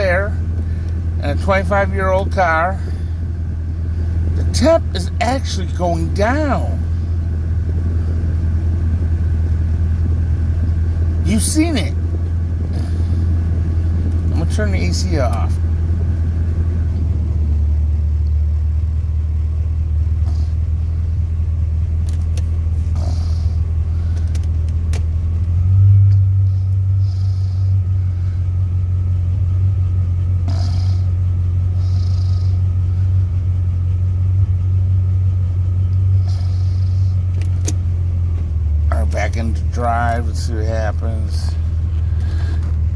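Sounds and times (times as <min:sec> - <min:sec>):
car engine idling: 0:00.0 - 0:42.9
light clicks and rustles: 0:24.1 - 0:25.6.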